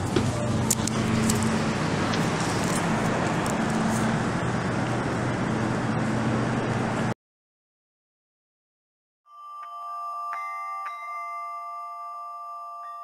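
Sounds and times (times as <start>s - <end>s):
low hum: 0.0s - 7.2s
train rumble: 0.0s - 7.2s.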